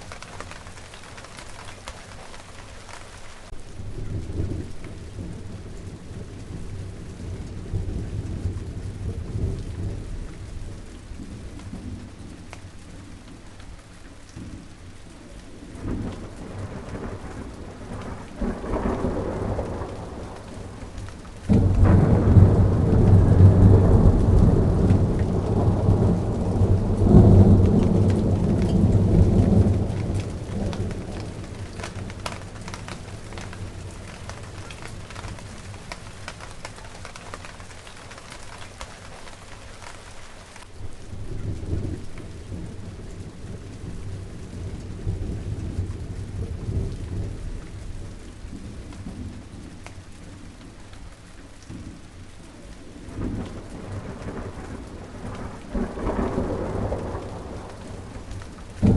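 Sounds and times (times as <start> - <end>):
steady rain patter: 0.0 - 58.9
thunder rolling: 3.7 - 12.5, 15.6 - 38.8, 53.1 - 58.9.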